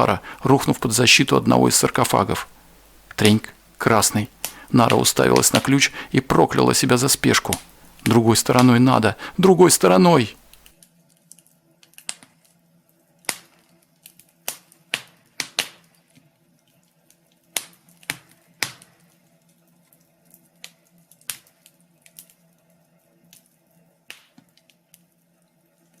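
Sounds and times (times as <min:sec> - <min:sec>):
fireplace crackling pops: 0:00.0 - 0:10.8, 0:13.2 - 0:16.0, 0:17.1 - 0:19.2, 0:20.3 - 0:22.4, 0:23.3 - 0:25.1
faint steady hum: 0:00.0 - 0:11.8.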